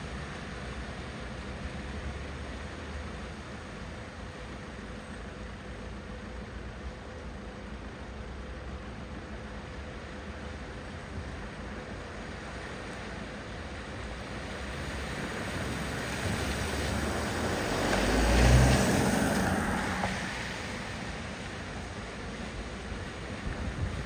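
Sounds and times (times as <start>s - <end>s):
vehicle splashing through floodwater: 9.7s - 24.0s
low vehicle rumble: 13.7s - 24.0s.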